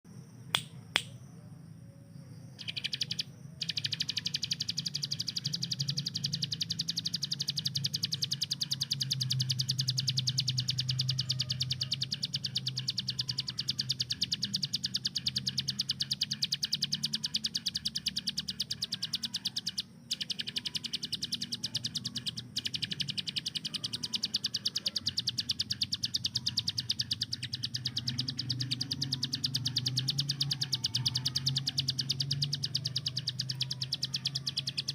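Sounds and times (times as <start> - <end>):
bird singing rapid trill: 0.2 - 34.9.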